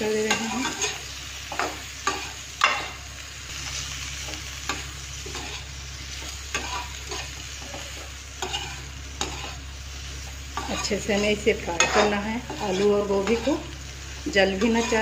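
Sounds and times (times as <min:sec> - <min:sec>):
vegetables sizzling in oil: 0:00.0 - 0:15.0
spatula scraping a metal pan: 0:04.7 - 0:05.7, 0:06.5 - 0:09.6, 0:10.5 - 0:13.6, 0:14.5 - 0:15.0.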